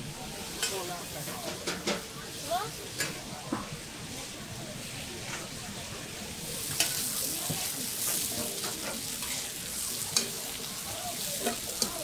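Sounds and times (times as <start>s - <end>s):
potato sizzling on griddle: 0.1s - 12.0s
metal spatula clicking on griddle: 6.7s - 7.0s, 10.1s - 10.4s, 11.4s - 12.0s.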